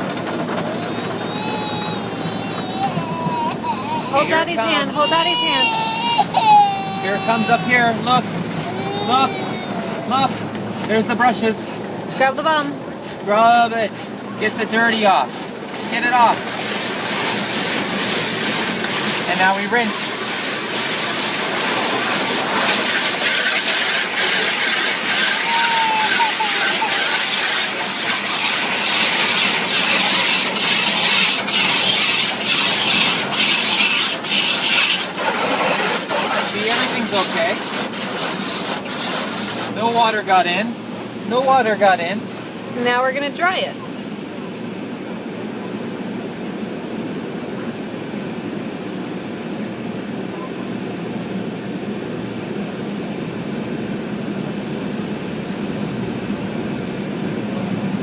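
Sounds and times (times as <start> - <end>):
water spraying onto car: 0.0 - 42.9.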